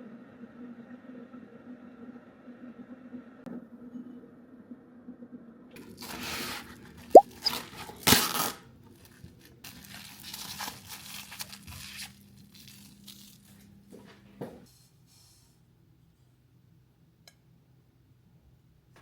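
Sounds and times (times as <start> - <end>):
rustling and crinkling: 5.8 - 14.6.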